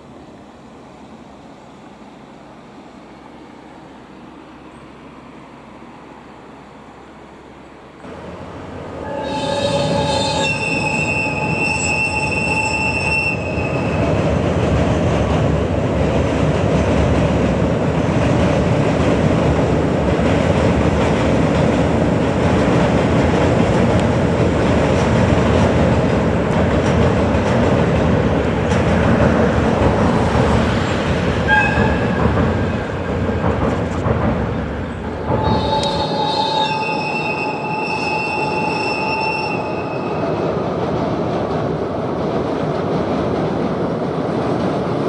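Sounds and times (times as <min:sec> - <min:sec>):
train wheels rumbling on rail: 0:00.0 - 0:45.0
high wheel squealing: 0:08.1 - 0:14.4, 0:22.0 - 0:40.5.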